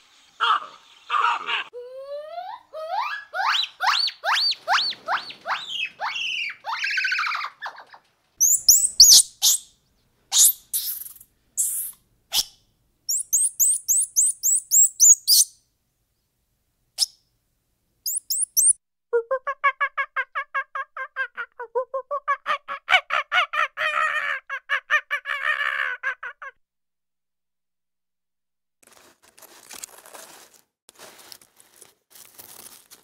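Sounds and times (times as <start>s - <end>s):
monkey chirping: 8.4s - 9.7s, 10.3s - 15.5s, 18.1s - 18.8s.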